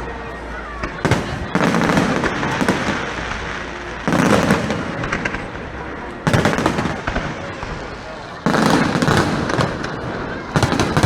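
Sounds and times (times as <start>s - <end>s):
fireworks bursting with crackling: 0.0s - 11.0s.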